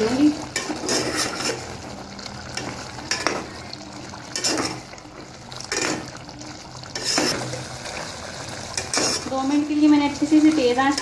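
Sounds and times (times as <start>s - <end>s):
food sizzling in a pot: 0.0s - 11.0s
metal spoon scraping a pot: 0.4s - 1.8s, 4.3s - 4.9s, 5.6s - 6.2s, 6.9s - 7.7s, 8.7s - 9.6s.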